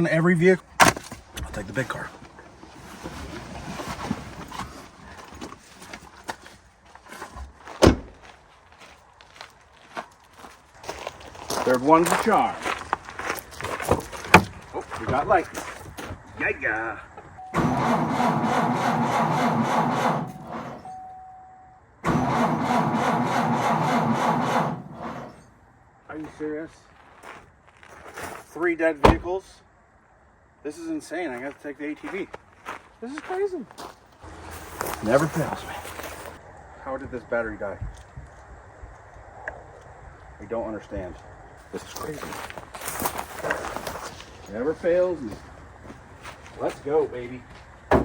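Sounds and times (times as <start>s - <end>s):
footsteps: 0.8s - 17.4s, 26.1s - 28.6s, 31.4s - 36.4s, 41.0s - 48.0s
rustling: 1.0s - 7.8s, 34.2s - 36.4s
car door shutting: 7.8s - 8.2s, 29.0s - 29.3s
car starter cranking engine: 17.4s - 21.1s, 22.0s - 25.5s
faint steady chime: 20.8s - 21.8s.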